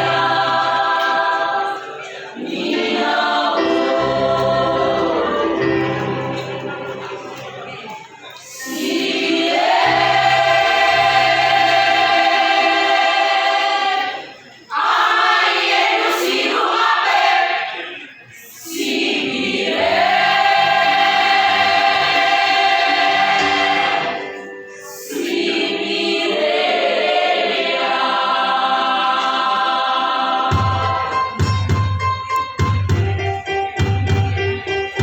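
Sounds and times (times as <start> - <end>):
choir singing held chords: 0.0 - 31.7.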